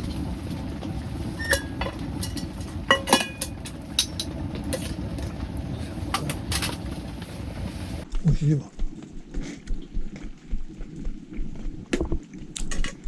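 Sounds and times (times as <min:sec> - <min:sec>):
steady low rumble: 0:00.0 - 0:13.0
metal utensils clinking cookware: 0:01.3 - 0:06.9.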